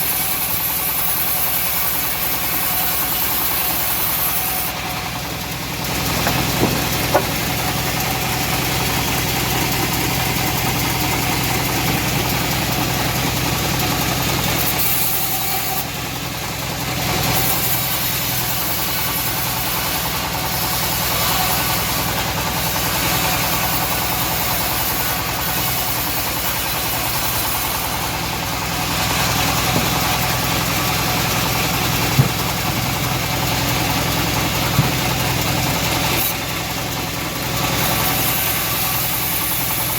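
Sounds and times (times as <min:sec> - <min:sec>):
bandsaw mill sawing wood: 0:00.0 - 0:39.9
sharp knocks: 0:06.0 - 0:07.8, 0:32.1 - 0:32.6.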